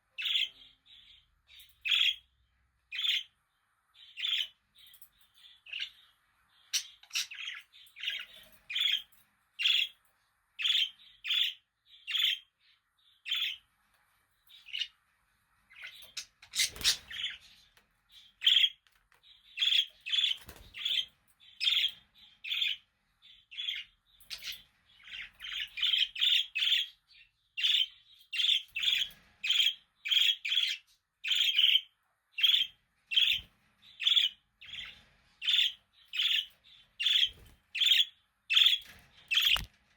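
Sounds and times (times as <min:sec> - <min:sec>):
budgerigar chirping: 0:27.6 - 0:33.4.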